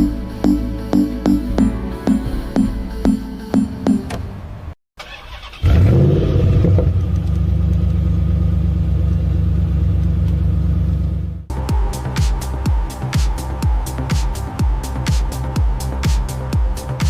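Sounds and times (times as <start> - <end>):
sports car engine starting and running: 2.3 - 17.0.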